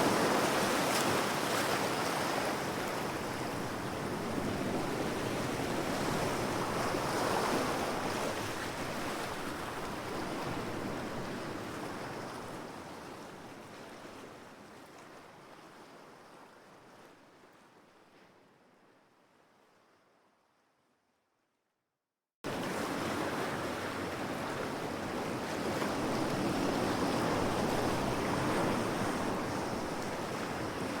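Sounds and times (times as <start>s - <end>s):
ocean waves on shore: 0.0s - 12.3s, 22.5s - 31.0s.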